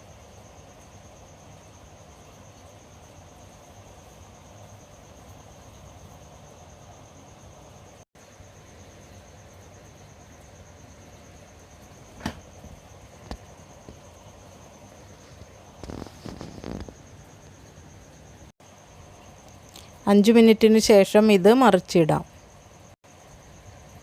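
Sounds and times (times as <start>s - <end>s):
high steady whine: 14.6s - 18.5s.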